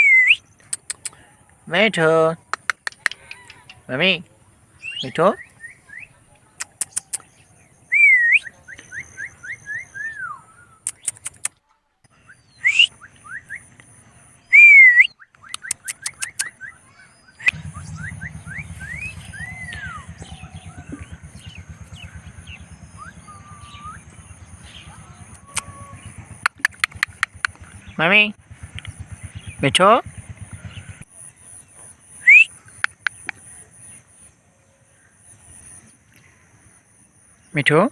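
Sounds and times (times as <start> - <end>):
sharp clicks: 0.6 - 1.2, 2.5 - 3.8, 6.6 - 7.3, 10.8 - 11.6, 15.3 - 16.5, 25.3 - 27.8, 28.6 - 29.0, 32.7 - 33.4
steady low hum: 16.2 - 37.5.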